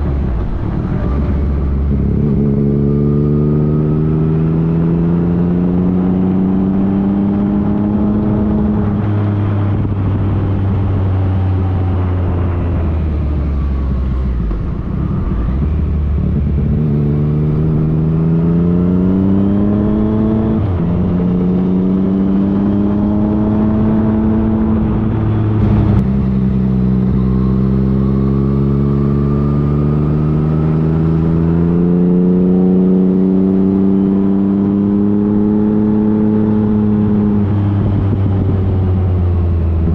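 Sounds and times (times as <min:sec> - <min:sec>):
wind rushing: 0:07.5 - 0:28.4.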